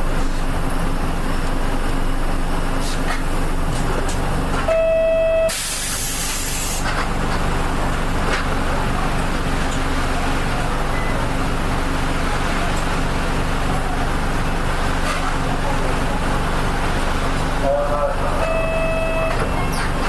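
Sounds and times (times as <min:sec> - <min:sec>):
bus running noise: 0:00.0 - 0:20.0
electronic beep: 0:04.7 - 0:05.5, 0:18.4 - 0:19.4
compressed air hiss: 0:05.5 - 0:06.9.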